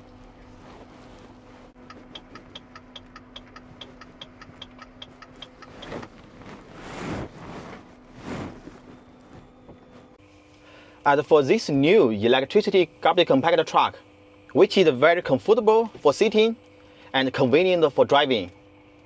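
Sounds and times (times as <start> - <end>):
low electric hum: 0.0 - 19.0
turn signal ticking: 1.8 - 6.4.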